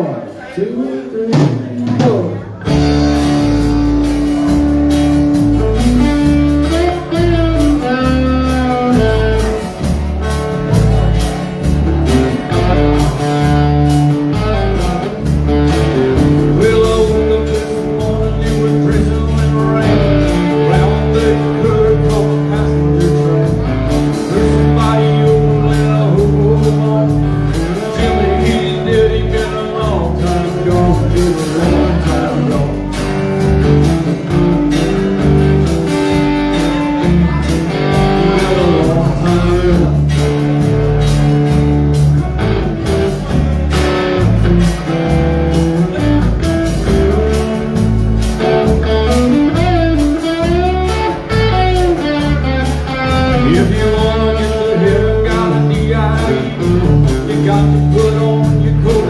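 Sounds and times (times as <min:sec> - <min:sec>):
guitar: 0:00.0 - 0:59.0
live country band playing blues: 0:00.0 - 0:59.0
bass and drum beat: 0:01.3 - 0:59.0.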